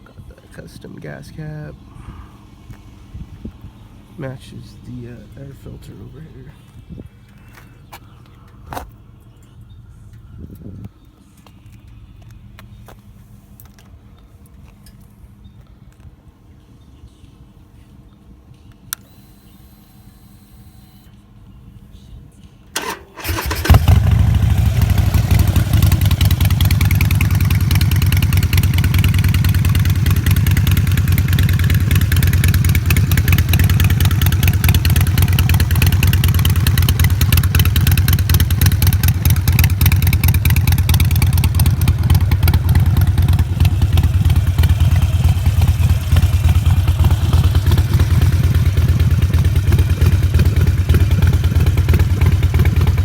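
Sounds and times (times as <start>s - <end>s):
motorcycle engine idling: 22.8s - 53.0s
motorcycle starter spinning: 22.8s - 53.0s.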